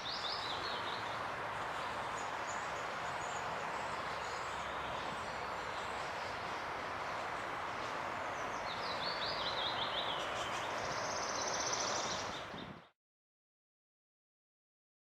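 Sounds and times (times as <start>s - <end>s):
small songbird singing: 0.0s - 1.1s, 8.3s - 12.9s
outdoor background hiss: 0.0s - 12.6s.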